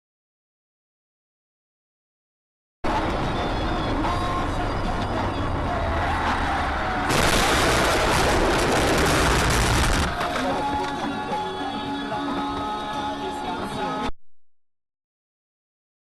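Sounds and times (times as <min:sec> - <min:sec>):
vehicle road and engine noise: 0:02.8 - 0:11.0.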